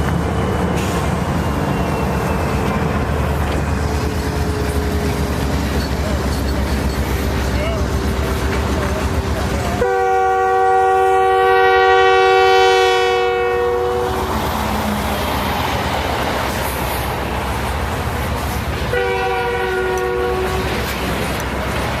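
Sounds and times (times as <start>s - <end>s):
moving train rumble and clatter: 0.0s - 22.0s
locomotive air horn: 9.8s - 14.4s, 18.8s - 21.0s.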